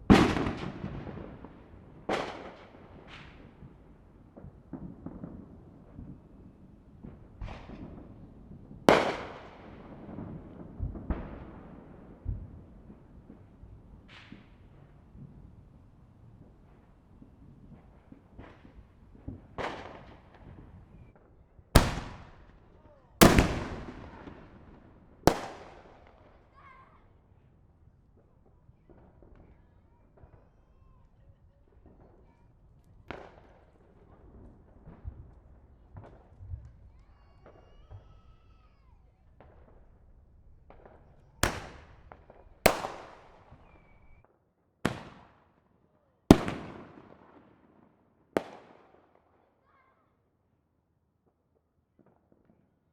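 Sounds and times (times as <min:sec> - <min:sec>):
distant fireworks bangs: 0:00.0 - 0:27.0, 0:33.1 - 0:44.2
faint firework pops: 0:07.0 - 0:08.3, 0:12.2 - 0:15.6, 0:28.2 - 0:40.0, 0:40.6 - 0:45.5, 0:46.3 - 0:47.6.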